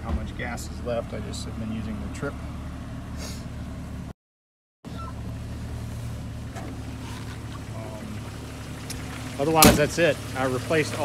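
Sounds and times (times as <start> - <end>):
car engine idling: 4.9 - 11.0.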